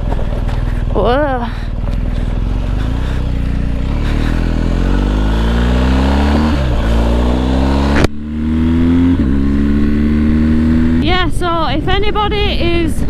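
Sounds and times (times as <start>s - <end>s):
motorcycle engine revving: 0.0s - 13.0s
sharp click: 7.9s - 8.2s.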